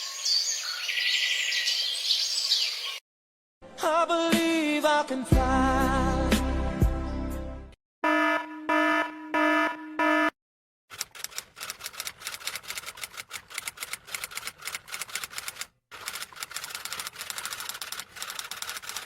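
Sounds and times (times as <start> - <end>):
rapid keyboard typing clicks: 10.9 - 19.0.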